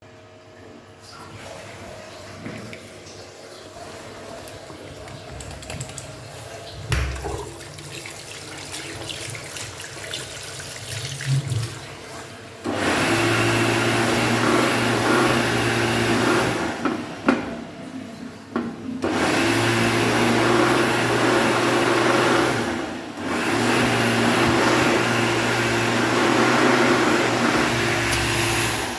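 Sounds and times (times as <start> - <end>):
washroom noise: 0.0 - 28.9
hand dryer blowing: 12.6 - 17.7, 19.0 - 28.9.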